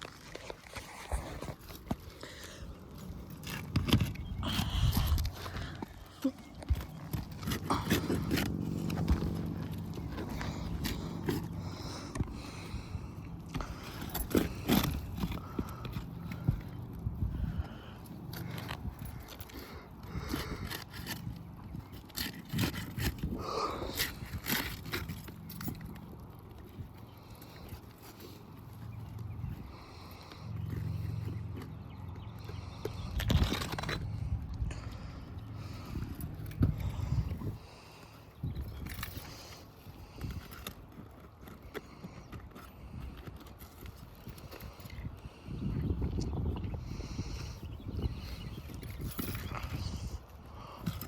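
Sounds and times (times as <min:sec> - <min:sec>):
tools scraping roof shingles: 0:00.0 - 0:28.5, 0:29.7 - 0:45.4
squeaky scrape: 0:32.3 - 0:34.4.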